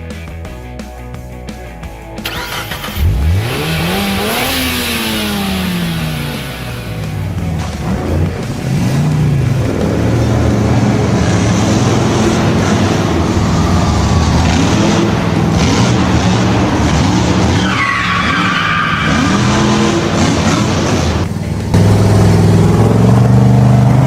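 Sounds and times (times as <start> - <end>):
vehicle engine revving: 2.2 - 24.0
tyre squeal: 16.6 - 21.1.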